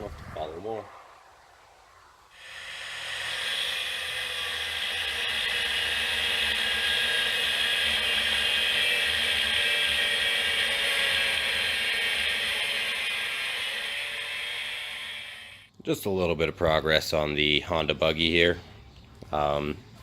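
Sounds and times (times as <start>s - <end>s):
machine whirring: 2.4s - 15.7s.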